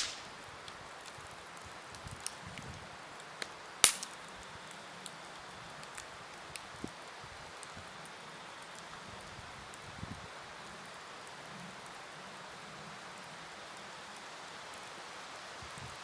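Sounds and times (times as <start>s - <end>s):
loud pop of burning wood: 0.0s - 1.2s, 3.4s - 4.2s
campfire hissing and crackling: 0.0s - 16.0s.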